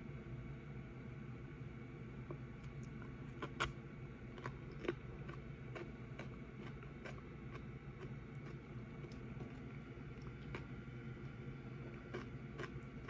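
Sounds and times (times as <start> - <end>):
wet chewing clicks: 4.4 - 13.0.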